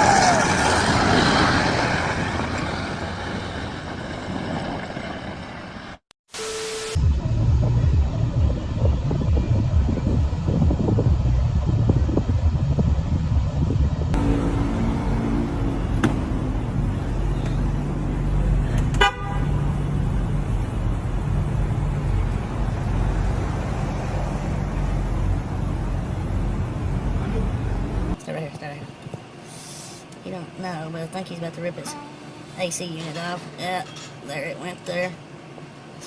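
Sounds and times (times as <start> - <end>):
vehicle engine rumbling: 0.0 - 6.0, 7.0 - 36.0
horn toots: 14.2 - 16.8, 18.9 - 19.8
sharp bang: 14.2 - 16.8.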